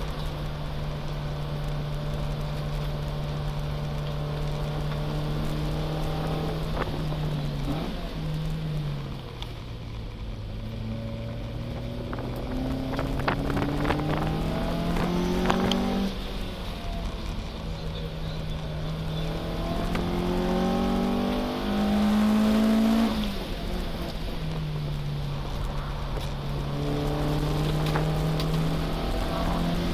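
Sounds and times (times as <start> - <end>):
race car engine accelerating: 10.8 - 24.3, 25.0 - 29.9.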